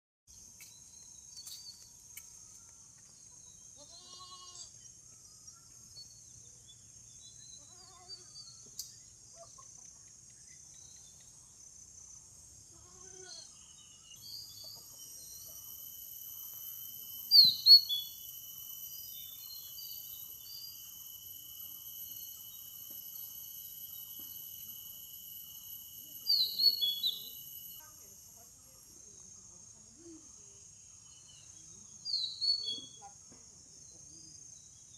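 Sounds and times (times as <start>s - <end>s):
insects buzzing: 0.3s - 34.9s
bird chirps: 0.6s - 11.5s, 13.2s - 16.2s, 17.0s - 21.0s, 26.2s - 28.0s, 31.0s - 33.1s
faint animal bleats: 3.8s - 4.7s, 12.7s - 13.5s.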